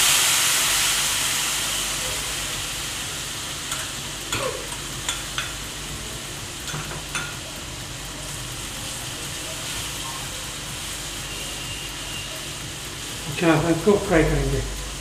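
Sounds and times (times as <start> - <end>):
food sizzling in hot oil: 0.0 - 15.0
utensils knocking against pan: 3.7 - 5.6, 6.6 - 7.4.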